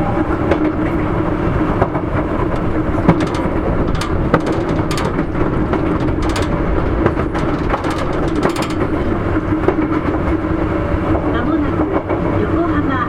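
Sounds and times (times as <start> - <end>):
train wheels rumbling on rails: 0.0 - 13.0
clicks and knocks: 1.8 - 10.3.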